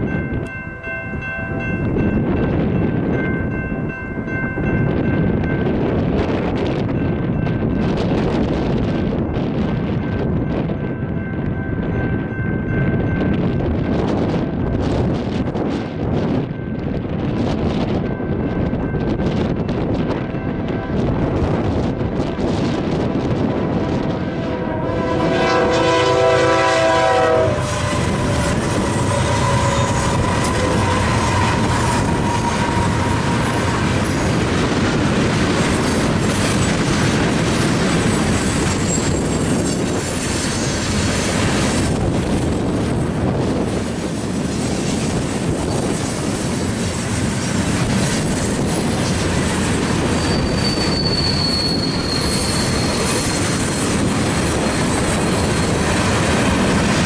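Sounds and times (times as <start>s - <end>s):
freight train rumbling past: 0.0s - 57.0s
train air horn chord: 24.3s - 33.1s
thin high wheel squeal: 27.6s - 33.0s, 38.5s - 40.9s, 50.1s - 56.0s.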